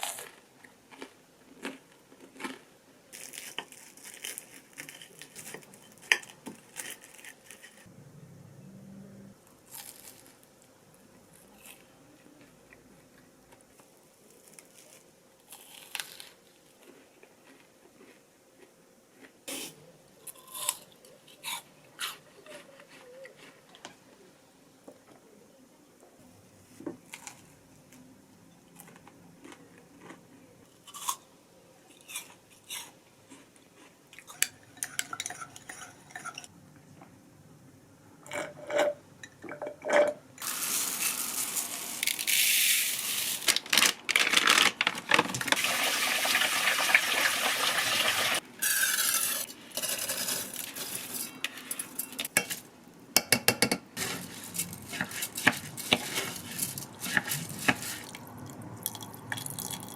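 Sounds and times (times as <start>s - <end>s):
dishes and pots clinking: 38.3s - 40.5s
running water: 45.6s - 48.4s.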